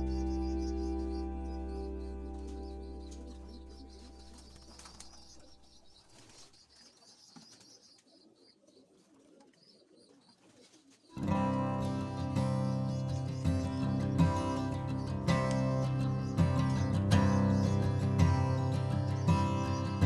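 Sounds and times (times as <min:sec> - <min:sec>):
background music: 0:00.0 - 0:05.0, 0:11.2 - 0:20.0
guitar music: 0:00.0 - 0:05.6, 0:11.2 - 0:20.0
pigeons cooing: 0:00.0 - 0:20.0.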